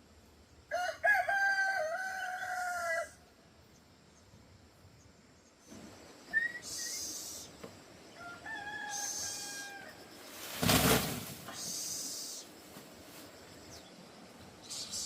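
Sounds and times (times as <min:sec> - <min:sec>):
rooster crowing: 0:00.7 - 0:03.2, 0:08.1 - 0:10.2
rustling thump: 0:10.4 - 0:11.5.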